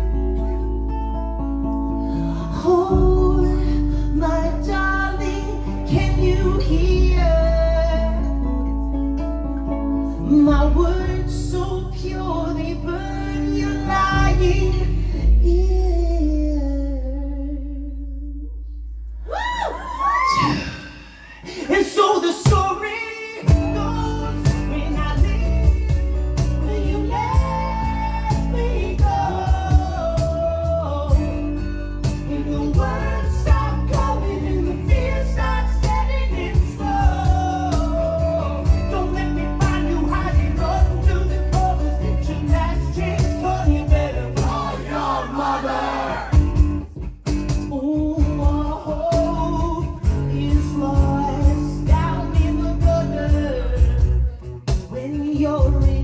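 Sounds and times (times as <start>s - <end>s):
acoustic guitars: 0.0s - 56.0s
person singing: 2.2s - 8.4s, 20.0s - 46.4s, 47.7s - 56.0s.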